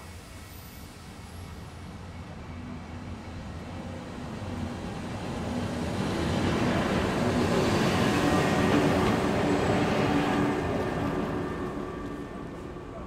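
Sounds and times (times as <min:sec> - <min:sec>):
train running wheel noise: 0:00.0 - 0:13.0.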